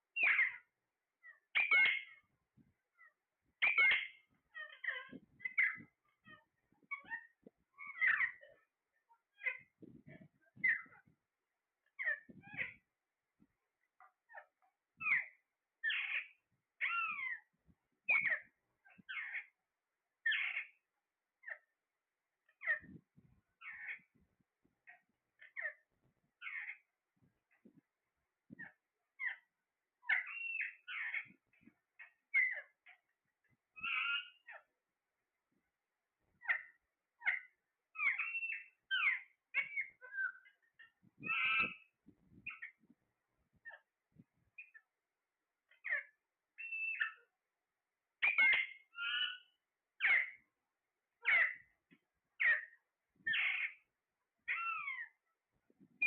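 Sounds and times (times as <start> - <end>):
parrot shrill calls: 0.2 - 0.6, 1.6 - 2.2, 3.6 - 5.8, 15.0 - 17.4, 30.0 - 31.2, 32.3 - 32.6, 33.8 - 34.6, 36.4 - 40.5, 41.3 - 41.9, 45.8 - 47.2, 48.2 - 50.4, 51.2 - 51.6, 53.3 - 53.8, 54.5 - 55.2
parrot squawks and chirps: 0.2 - 2.3, 3.0 - 8.6, 9.3 - 11.1, 12.0 - 12.8, 14.3 - 17.5, 18.1 - 19.6, 20.2 - 20.8, 21.4 - 21.7, 22.5 - 23.0, 23.6 - 24.1, 24.9 - 25.8, 26.4 - 26.9, 28.6 - 33.1, 33.8 - 34.7, 36.4 - 42.8, 44.6 - 44.8, 45.7 - 47.3, 48.2 - 50.5, 51.2 - 51.7, 52.4 - 53.9, 54.5 - 55.2.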